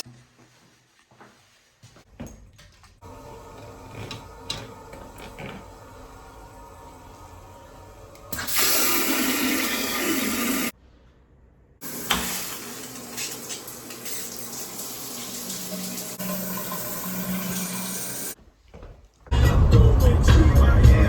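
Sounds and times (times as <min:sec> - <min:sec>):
tap water running into sink: 0:03.0 - 0:10.7, 0:11.8 - 0:18.4.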